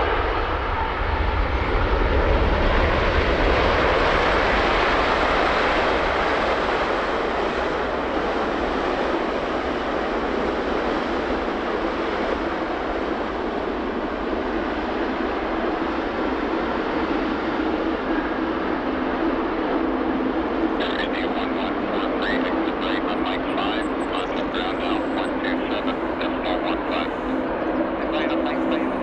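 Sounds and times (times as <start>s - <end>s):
jet engine rush: 0.0s - 29.0s.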